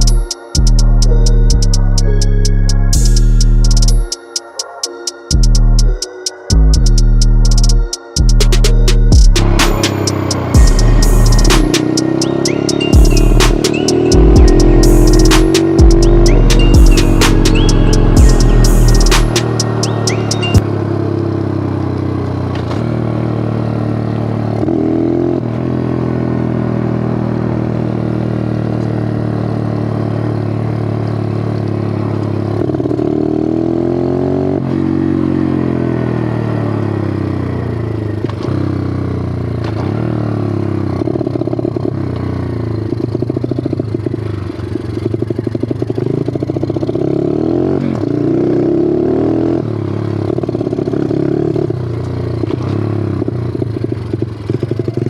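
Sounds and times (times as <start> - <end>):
pit bike engine revving: 9.2 - 20.6.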